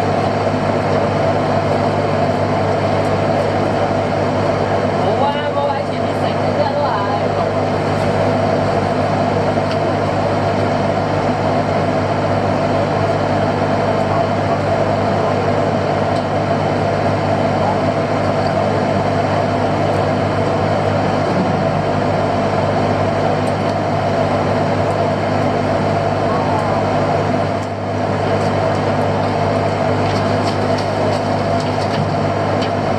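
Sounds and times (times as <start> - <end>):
boat engine droning: 0.0 - 32.9.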